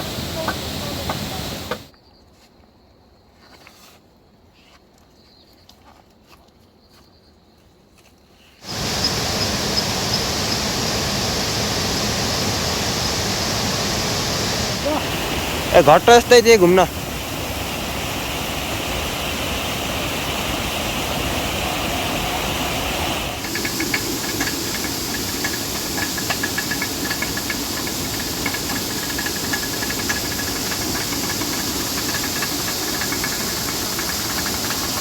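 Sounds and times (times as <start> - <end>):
water rushing and hissing: 0.0 - 1.9, 8.6 - 35.0
rapid light ticking: 23.4 - 35.0.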